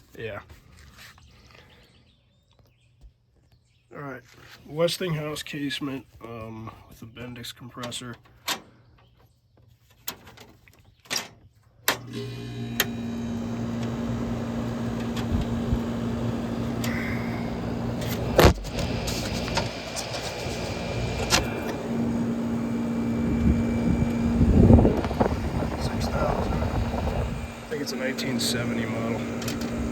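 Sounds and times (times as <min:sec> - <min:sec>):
air conditioner humming: 0:12.1 - 0:29.9.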